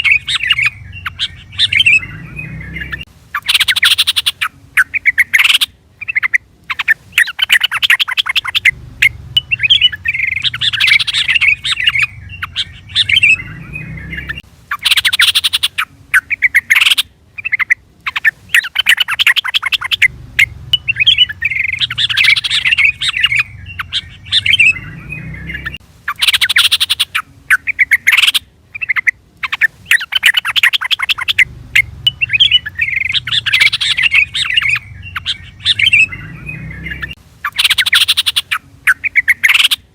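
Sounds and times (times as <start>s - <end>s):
bird harsh chatter: 0.0s - 39.9s
bird warbled song: 0.0s - 39.9s.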